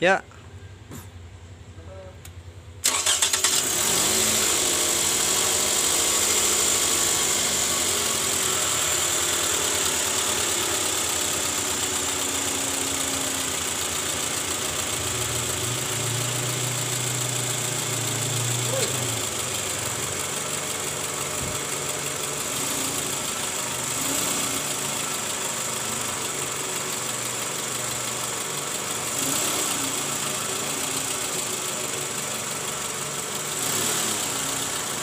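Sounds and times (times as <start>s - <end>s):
engine idling: 0.4s - 35.0s
engine cranking and starting: 2.8s - 7.1s.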